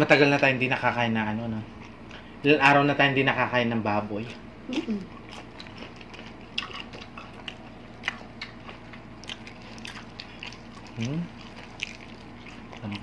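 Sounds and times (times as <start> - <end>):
faint steady low hum: 0.0 - 13.0
close chewing mouth sounds: 4.7 - 13.0.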